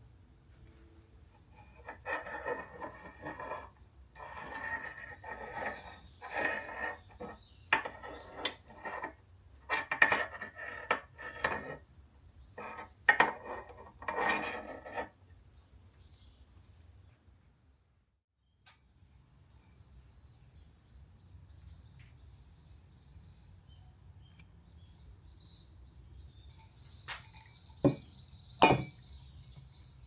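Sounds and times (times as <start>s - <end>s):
hard objects rubbing and scraping: 1.3s - 15.2s, 26.9s - 29.0s
sharp clinks and knocks: 26.6s - 29.0s.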